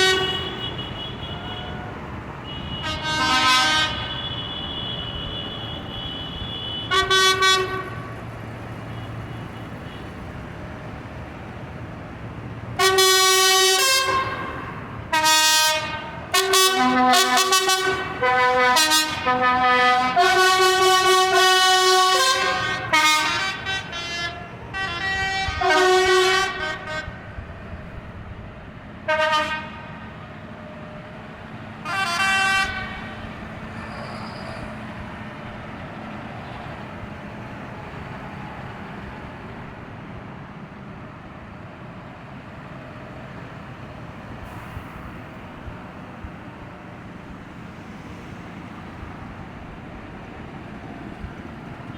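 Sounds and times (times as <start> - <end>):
tractor horns honking: 0.0 - 8.3, 12.8 - 27.5, 29.0 - 30.1, 31.8 - 34.8.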